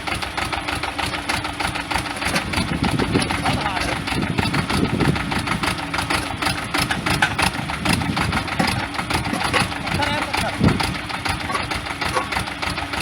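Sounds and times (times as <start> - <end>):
tractor diesel engine clattering: 0.0 - 13.0.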